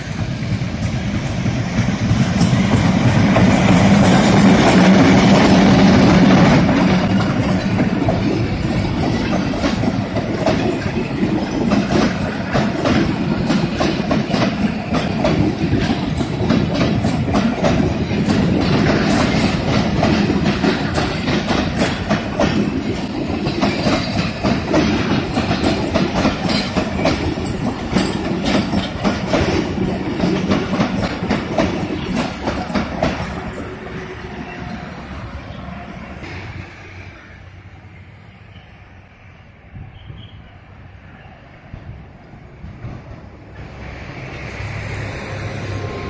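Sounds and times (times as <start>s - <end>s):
wheels clicking over rail joints: 0.0s - 34.0s
train rumbling past: 0.0s - 46.0s.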